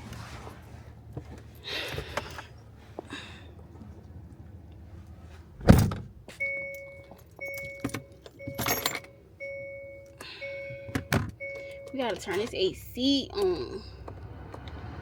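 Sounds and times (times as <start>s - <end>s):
car door shutting: 5.6s - 6.1s
two-note electronic warning chime: 6.4s - 12.3s
keys jangling: 6.8s - 9.1s.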